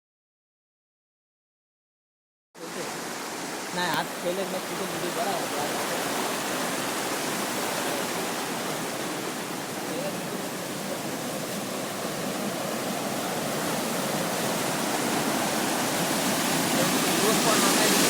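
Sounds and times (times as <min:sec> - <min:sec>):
flowing water rushing: 0:02.6 - 0:18.0.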